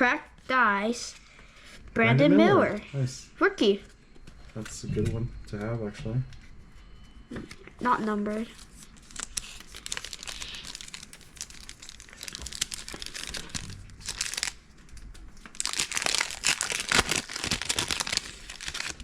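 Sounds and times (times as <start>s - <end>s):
plastic wrapper crinkling: 8.5s - 19.0s.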